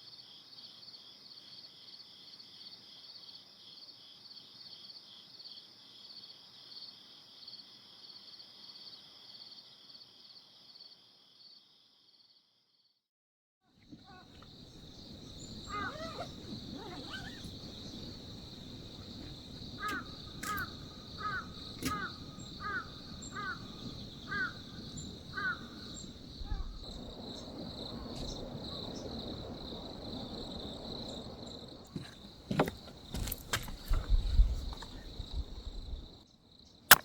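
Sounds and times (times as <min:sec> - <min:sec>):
crow calling: 0:13.9 - 0:26.9.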